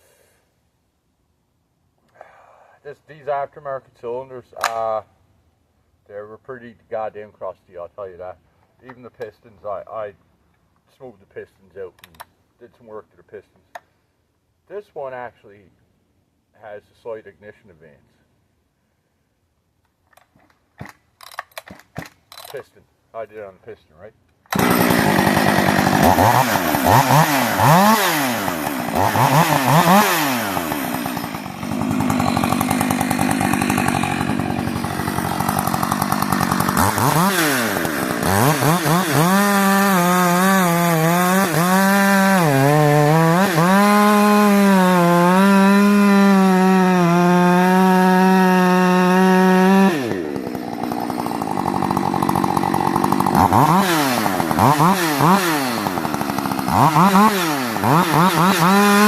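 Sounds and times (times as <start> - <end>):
chainsaw revving: 24.5 - 59.0.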